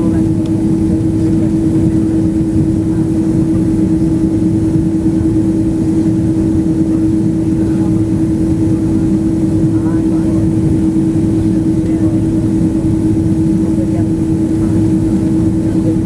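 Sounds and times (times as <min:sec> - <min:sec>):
airliner engines droning in cabin: 0:00.0 - 0:16.0.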